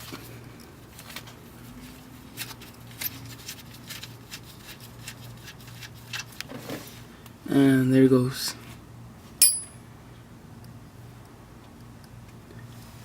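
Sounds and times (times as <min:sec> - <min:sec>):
steady low hum: 0:09.0 - 0:11.1.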